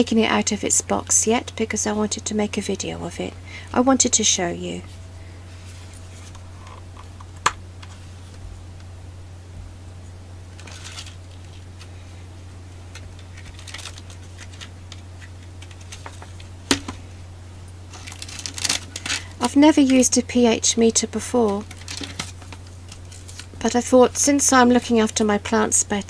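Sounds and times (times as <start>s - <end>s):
steady low hum: 0.0s - 26.0s
packaging rustling and sliding: 10.5s - 12.2s, 12.8s - 17.0s, 17.9s - 19.3s, 21.6s - 23.6s.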